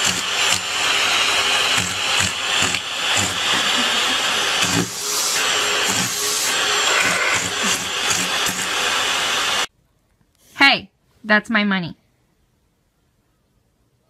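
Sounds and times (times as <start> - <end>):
vacuum cleaner running: 0.0 - 9.7.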